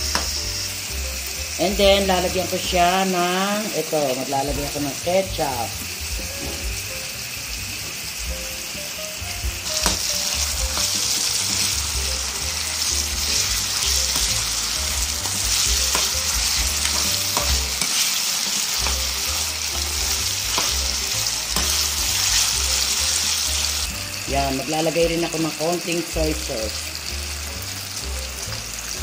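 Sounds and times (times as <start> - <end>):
vegetables sizzling in hot oil: 0.0 - 29.0
spatula scraping pan: 9.7 - 23.9.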